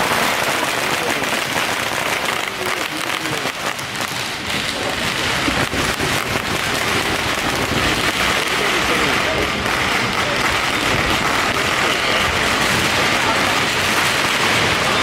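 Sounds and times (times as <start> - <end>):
firecrackers crackling: 0.0 - 15.0.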